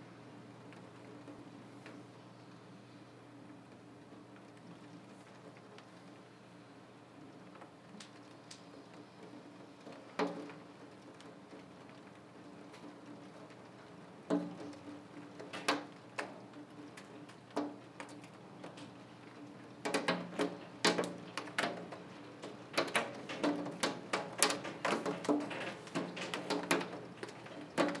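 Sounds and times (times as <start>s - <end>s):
faint hiss of rain: 0.0s - 28.0s
raindrops tapping on window glass: 3.6s - 6.4s, 7.2s - 28.0s.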